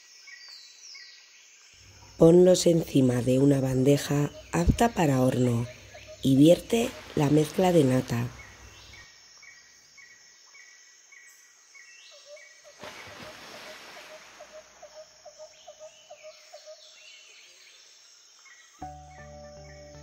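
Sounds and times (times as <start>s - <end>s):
birds chirping: 1.8s - 9.6s, 18.5s - 20.0s.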